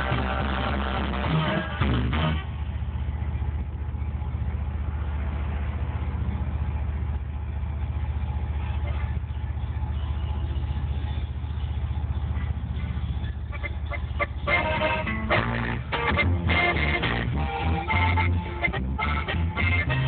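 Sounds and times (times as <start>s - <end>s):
truck engine rumbling: 0.0s - 20.0s.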